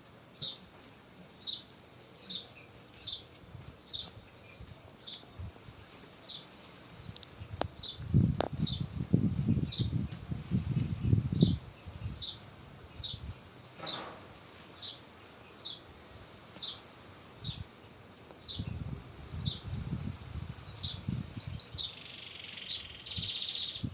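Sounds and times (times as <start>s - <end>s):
canary chirping: 0.0s - 7.2s, 11.0s - 16.8s, 18.4s - 23.9s
wings rustling and fluttering: 0.3s - 21.3s.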